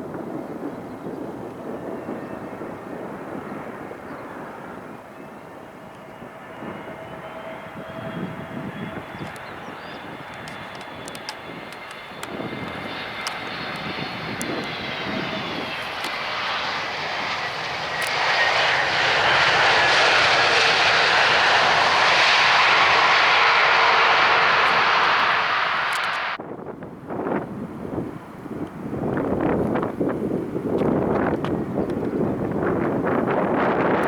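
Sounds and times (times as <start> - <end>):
jet airliner engines: 0.0 - 34.0
high engine whine: 5.6 - 26.4.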